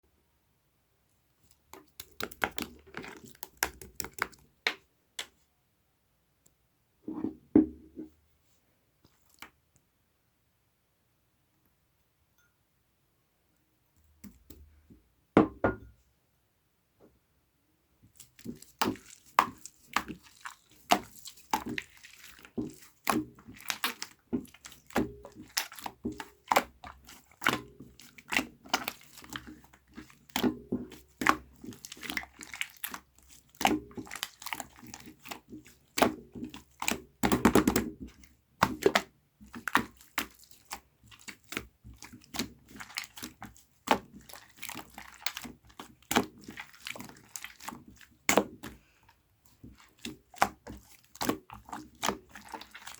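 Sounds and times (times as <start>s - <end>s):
rapid slime crackle: 18.2s - 52.9s.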